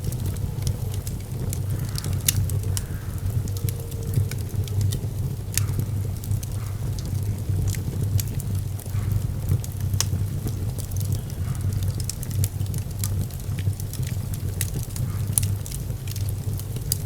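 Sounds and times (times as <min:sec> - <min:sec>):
fire crackling and popping: 0:00.0 - 0:17.0
low fire rumble: 0:00.0 - 0:17.0.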